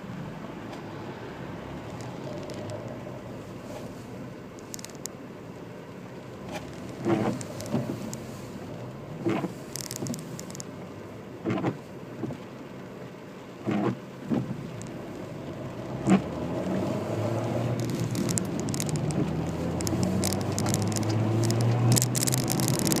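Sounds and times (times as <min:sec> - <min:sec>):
windscreen wipers: 0:00.0 - 0:23.0
car engine accelerating: 0:13.7 - 0:23.0.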